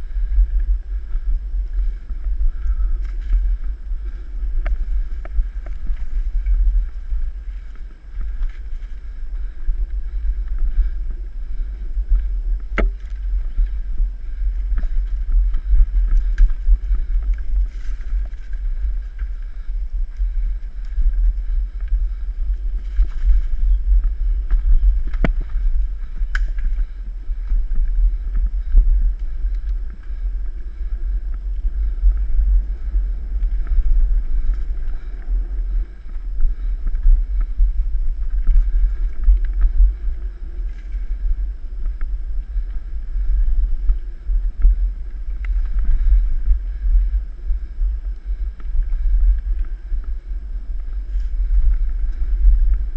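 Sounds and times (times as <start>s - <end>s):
wind buffeting microphone: 0.0s - 52.9s.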